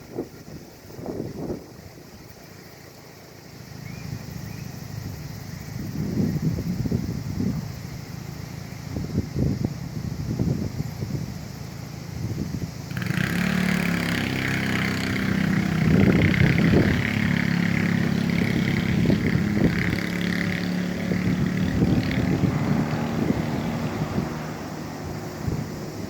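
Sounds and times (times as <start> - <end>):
steady high buzz: 6.8 - 26.0
vehicle engine passing by: 11.5 - 26.0.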